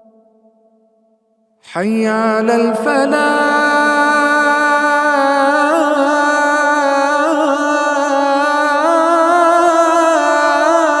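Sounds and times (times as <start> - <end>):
man singing call to prayer: 1.6 - 11.0.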